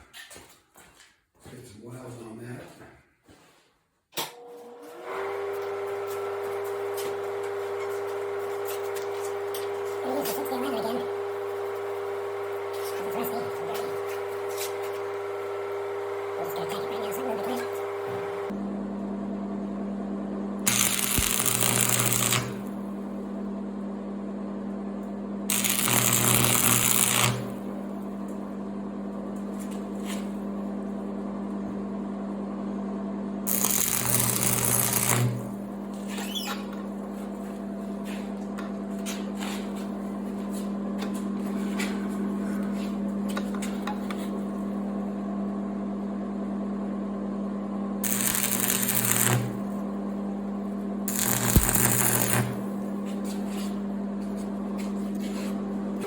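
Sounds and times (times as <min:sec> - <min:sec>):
stick welder humming: 0:04.2 - 0:18.5, 0:20.6 - 0:23.2, 0:25.5 - 0:28.4, 0:33.5 - 0:37.5, 0:48.0 - 0:50.0, 0:51.0 - 0:55.2
welding arc crackle: 0:20.7 - 0:22.8, 0:25.5 - 0:27.6, 0:33.5 - 0:35.5, 0:48.0 - 0:49.7, 0:51.1 - 0:52.7.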